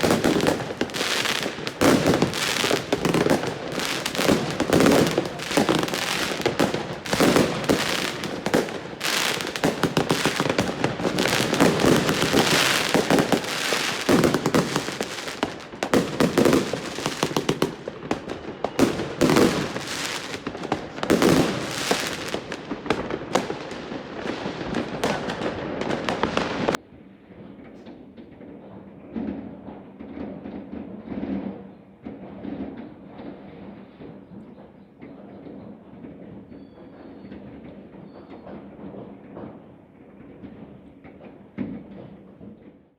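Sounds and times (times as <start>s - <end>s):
heavy firework booms: 0.0s - 26.8s
firecracker bangs and crackling: 0.0s - 42.9s.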